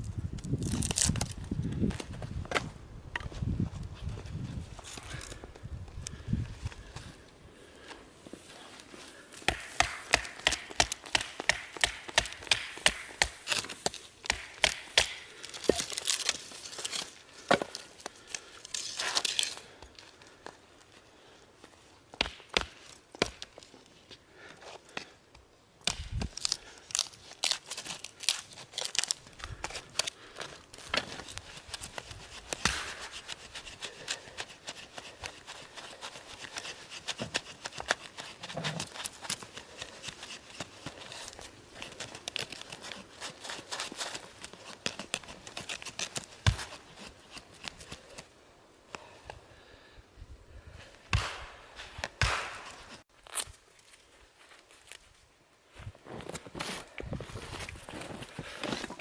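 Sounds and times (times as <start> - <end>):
crinkling and tearing: 0.3 - 1.8, 13.2 - 20.4, 26.0 - 48.3, 52.8 - 55.1.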